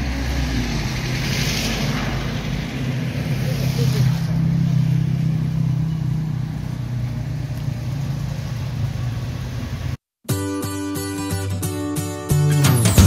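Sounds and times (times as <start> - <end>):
vehicle engine running: 2.4 - 10.0
plucked acoustic guitar music: 10.3 - 13.0.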